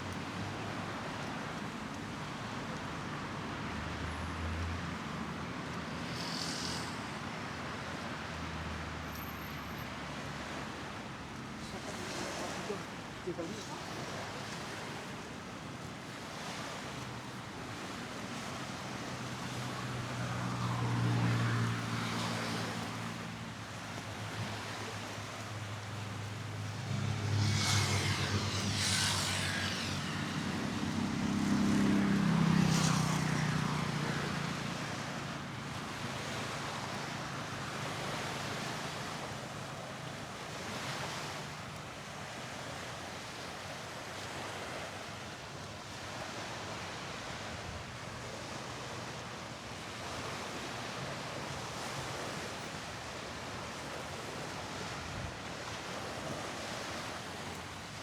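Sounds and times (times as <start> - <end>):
vehicles driving past: 3.4 - 10.9, 19.1 - 42.5.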